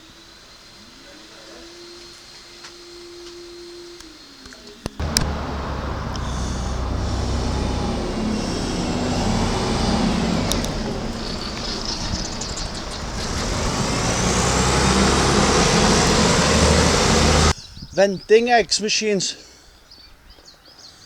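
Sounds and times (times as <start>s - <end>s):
road traffic: 5.0s - 17.5s.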